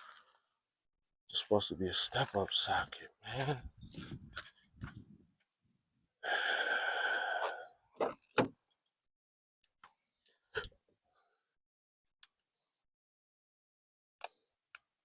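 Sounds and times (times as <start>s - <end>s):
long breathy sigh: 6.2s - 7.8s.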